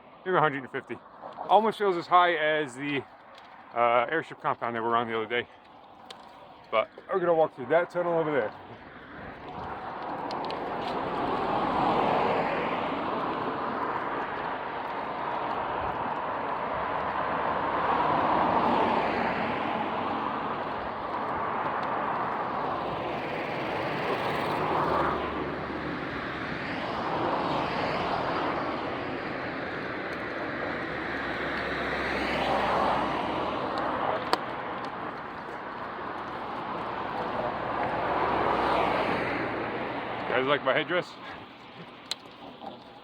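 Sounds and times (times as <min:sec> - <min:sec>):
road traffic passing: 0:00.0 - 0:43.0.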